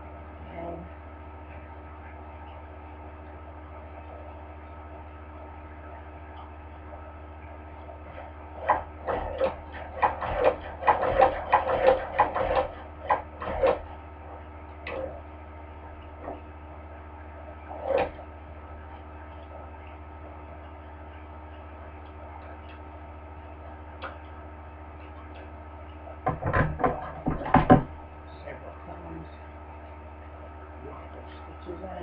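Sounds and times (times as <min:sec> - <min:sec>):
steady low hum: 0:00.0 - 0:32.0
sewing machine clacking: 0:08.6 - 0:13.9.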